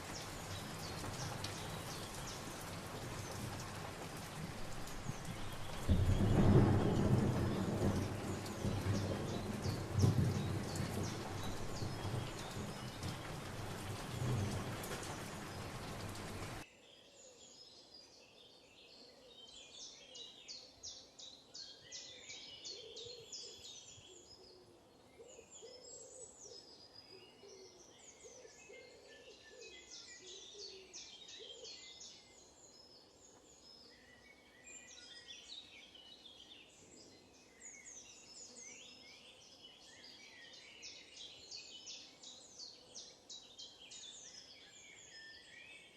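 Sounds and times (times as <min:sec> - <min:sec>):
heavy rain: 0:00.0 - 0:16.6
songbirds chirping and trilling: 0:00.0 - 0:45.9.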